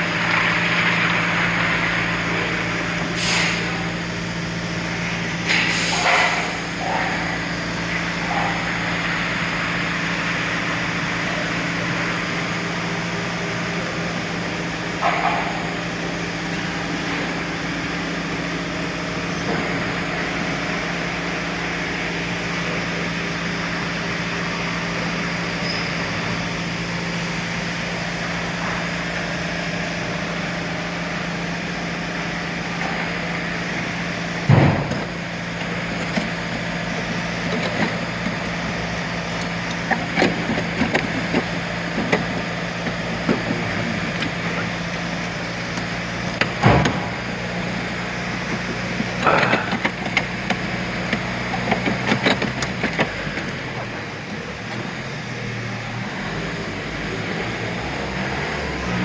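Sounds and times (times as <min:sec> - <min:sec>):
steady mechanical hum: 0:00.0 - 0:59.0.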